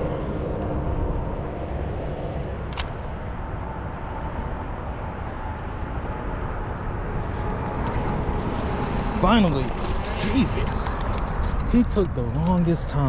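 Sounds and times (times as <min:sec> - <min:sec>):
outdoor background noise: 0:00.0 - 0:13.0
sharp click: 0:02.7 - 0:03.0.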